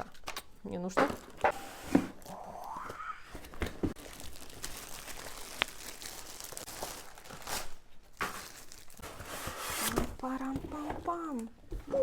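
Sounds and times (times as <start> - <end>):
packaging rustling and crinkling: 3.3 - 11.5.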